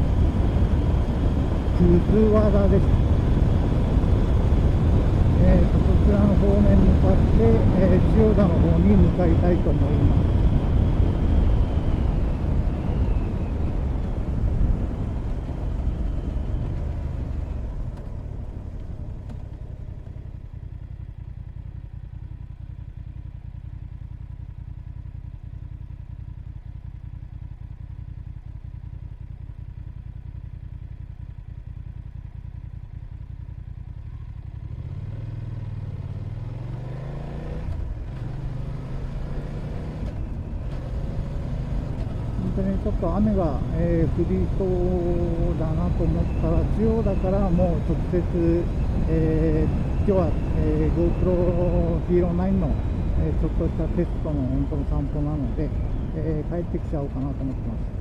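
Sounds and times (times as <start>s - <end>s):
wind rush: 0.0s - 16.5s
motorcycle engine: 0.0s - 58.0s.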